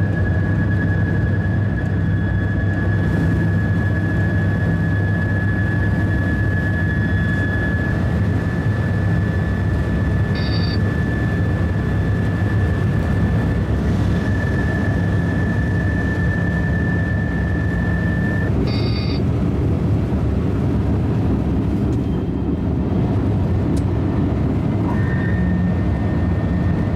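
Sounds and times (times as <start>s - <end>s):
high train whine: 0.0s - 26.9s
train rumble: 0.0s - 26.9s
multi-tone beep: 10.3s - 10.8s, 18.1s - 19.2s.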